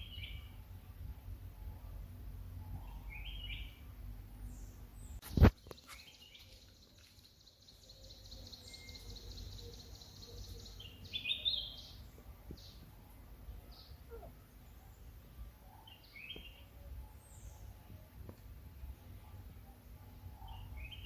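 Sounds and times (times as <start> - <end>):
bird chirps: 4.4 - 18.0, 19.7 - 21.0.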